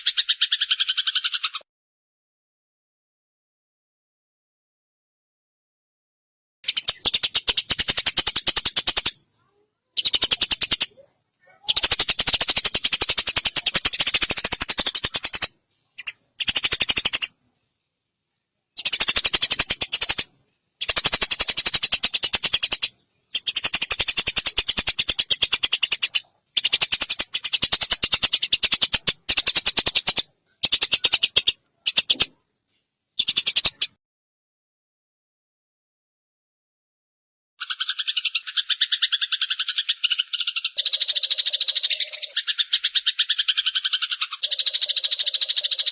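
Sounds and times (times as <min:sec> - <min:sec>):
sparrows chattering harshly: 0:00.0 - 0:01.6, 0:06.6 - 0:17.4, 0:18.8 - 0:32.4, 0:33.2 - 0:34.0, 0:37.6 - 0:45.9.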